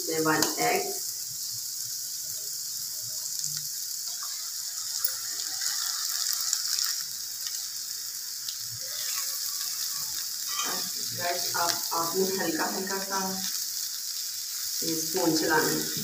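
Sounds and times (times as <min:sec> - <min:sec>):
vegetables sizzling in oil: 0:00.0 - 0:16.0
spatula stirring in pan: 0:03.8 - 0:16.0.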